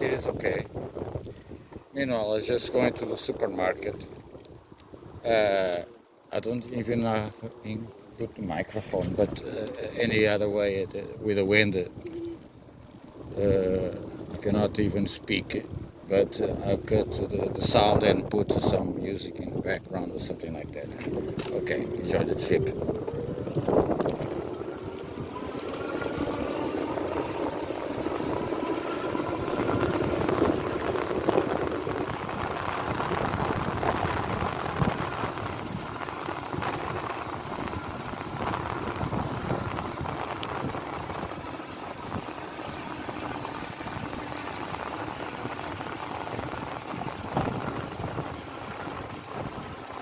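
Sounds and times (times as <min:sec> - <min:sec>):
wind noise on microphone: 0:00.0 - 0:05.8, 0:08.5 - 0:12.6, 0:13.2 - 0:50.0
electric motor whining: 0:15.6 - 0:48.2.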